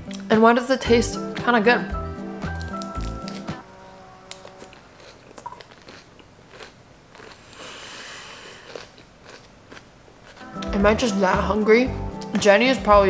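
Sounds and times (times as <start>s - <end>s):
chewing crunchy lettuce: 2.5s - 3.6s, 4.3s - 7.7s, 8.6s - 10.7s.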